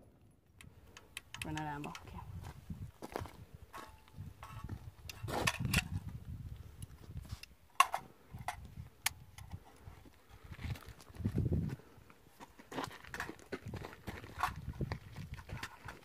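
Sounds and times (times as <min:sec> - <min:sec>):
handling clicks and knocks: 0:07.4 - 0:09.6.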